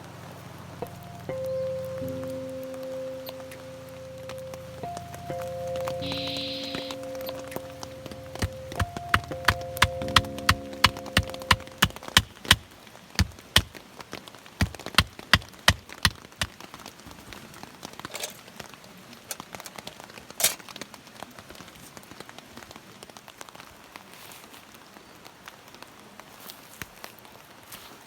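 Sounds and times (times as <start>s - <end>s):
steady rain falling: 0.0s - 28.0s
drops tapping: 0.8s - 13.8s, 14.6s - 16.6s
sharp knocks: 8.1s - 13.7s, 14.6s - 16.6s.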